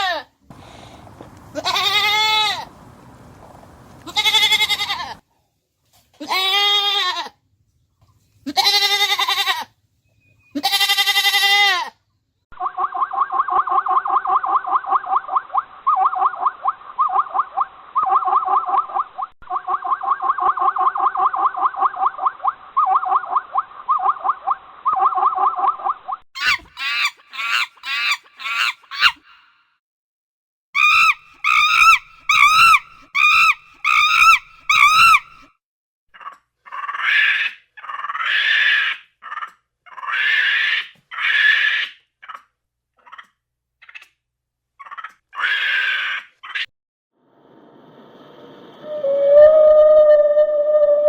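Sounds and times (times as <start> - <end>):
fast chattering animal call: 0.5 - 5.2, 30.8 - 35.4
goat bleating: 0.5 - 5.2, 6.2 - 7.3, 8.5 - 9.7, 10.6 - 11.9.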